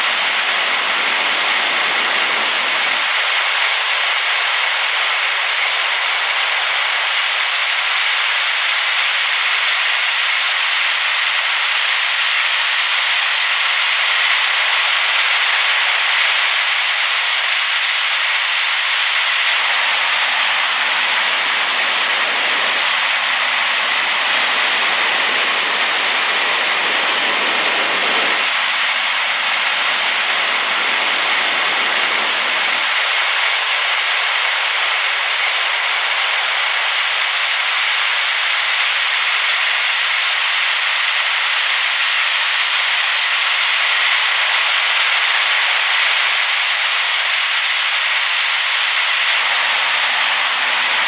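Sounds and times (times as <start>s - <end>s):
waterfall rushing: 0.0s - 7.5s, 19.4s - 37.7s, 49.2s - 51.0s.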